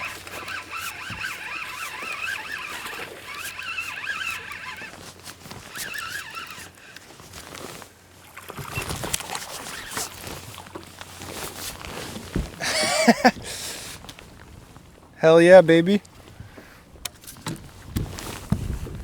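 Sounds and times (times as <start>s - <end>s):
fishing reel whirring: 0.0s - 7.5s, 8.7s - 10.3s, 12.6s - 14.0s.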